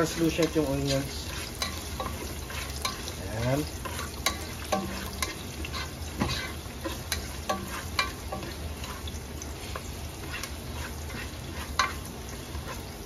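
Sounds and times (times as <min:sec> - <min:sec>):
onions sizzling in hot oil: 0:00.0 - 0:13.0
plastic spatula scraping pot: 0:05.0 - 0:09.1, 0:10.2 - 0:12.9.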